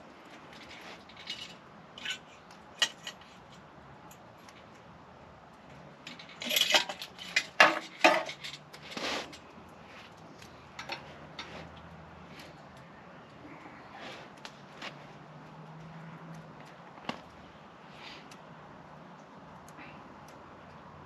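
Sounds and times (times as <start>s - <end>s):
small metal objects clattering: 0.4s - 3.5s, 6.0s - 11.7s.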